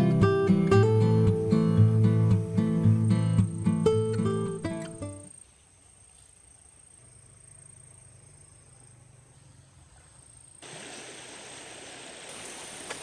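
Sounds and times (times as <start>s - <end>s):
high-pitched insect trilling: 0.0s - 5.5s
even hiss: 0.0s - 5.7s, 10.6s - 13.0s.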